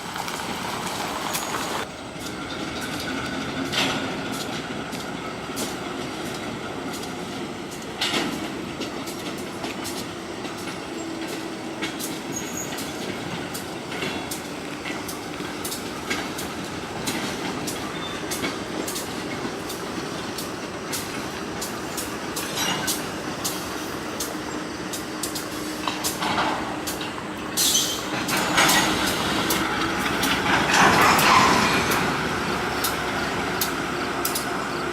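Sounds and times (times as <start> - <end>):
freight train rumbling past: 0.0 - 34.9
wheels clicking on rails: 0.0 - 34.9
thin wheel squeal: 1.2 - 1.8, 12.3 - 13.0, 27.6 - 29.6.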